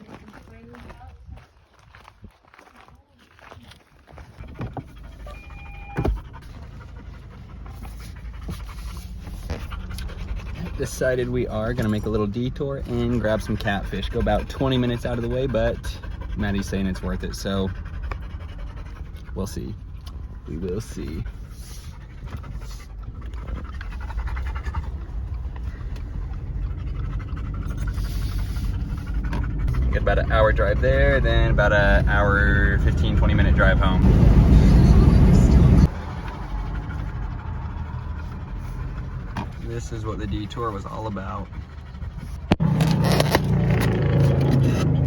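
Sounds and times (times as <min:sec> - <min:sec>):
dog panting: 0:03.3 - 0:43.2
steady low rumble: 0:04.3 - 0:42.6
brief beep: 0:05.2 - 0:06.2.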